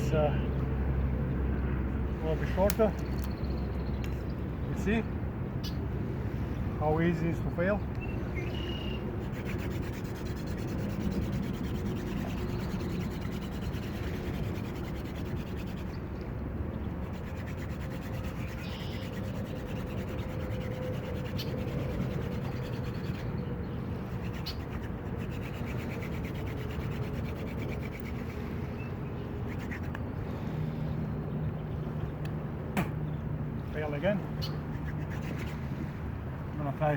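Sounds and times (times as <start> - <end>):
wooden drill rubbing in a notch: 9.0 - 16.2, 17.0 - 28.7.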